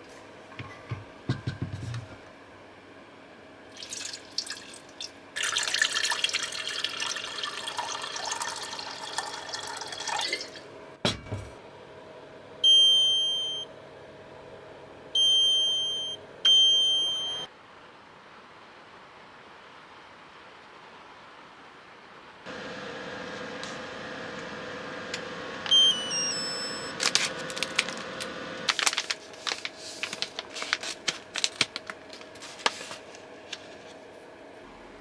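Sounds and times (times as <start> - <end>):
liquid pouring: 3.7 - 10.7
electronic beeps: 25.7 - 27.0.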